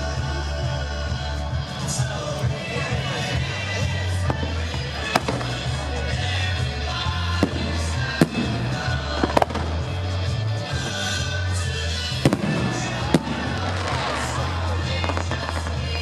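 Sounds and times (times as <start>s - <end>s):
music with heavy bass: 0.0s - 16.0s
fireworks bangs: 4.2s - 6.2s, 7.2s - 11.3s, 12.1s - 16.0s.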